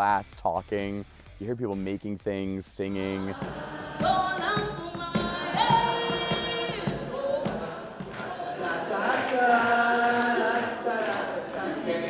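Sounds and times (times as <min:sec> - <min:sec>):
people singing with music: 0:02.8 - 0:12.0
short thumps: 0:03.3 - 0:08.7.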